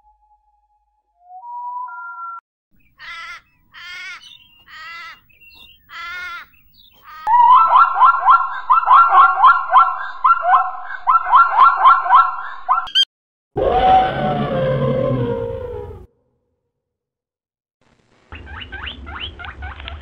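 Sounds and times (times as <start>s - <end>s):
zebra barking yelps: 3.0s - 5.2s, 5.9s - 12.9s.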